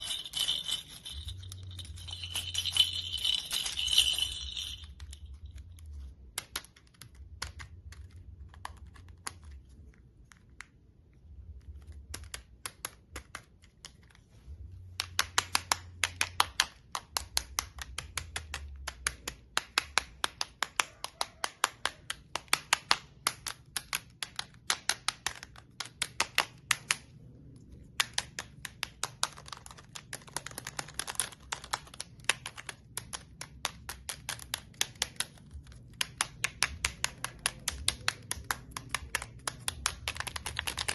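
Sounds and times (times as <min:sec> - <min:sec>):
toy clicking: 0:00.0 - 0:08.0, 0:27.9 - 0:40.9.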